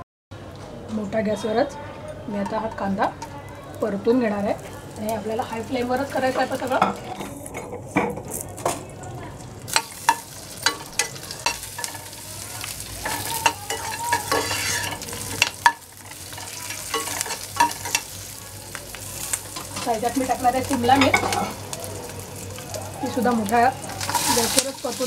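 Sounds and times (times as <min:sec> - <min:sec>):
onions sizzling in hot oil: 0:02.7 - 0:08.6, 0:09.6 - 0:25.0
metal spoon scraping a pan: 0:09.7 - 0:18.2, 0:19.2 - 0:21.7, 0:23.8 - 0:25.0.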